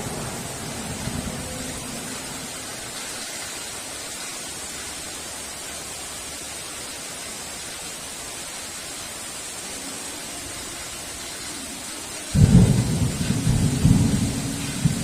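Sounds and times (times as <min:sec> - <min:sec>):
thunder clap and rumble: 0:00.0 - 0:02.6, 0:12.4 - 0:15.0
heavy rain hiss: 0:00.0 - 0:15.0.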